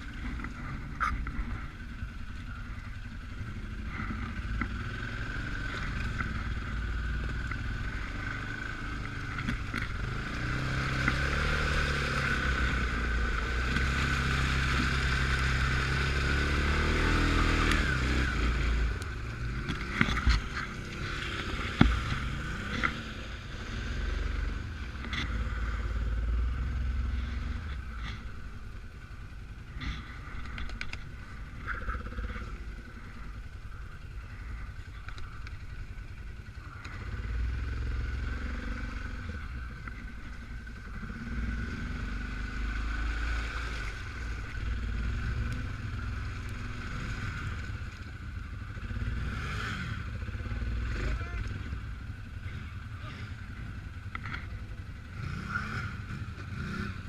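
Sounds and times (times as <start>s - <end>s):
atv engine running under load: 0.0s - 57.0s.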